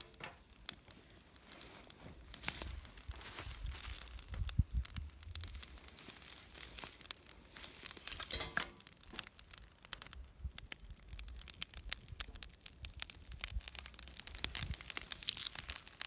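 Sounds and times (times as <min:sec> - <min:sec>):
crackles and crinkling rustles: 0:00.0 - 0:16.0
faint low rumble: 0:02.1 - 0:07.7.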